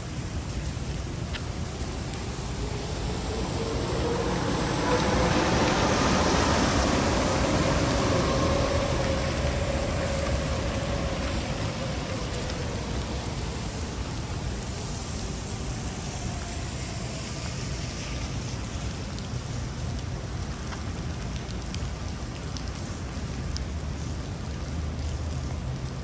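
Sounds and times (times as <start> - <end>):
low rumble: 0.0 - 16.1
steady rain falling: 0.0 - 26.0.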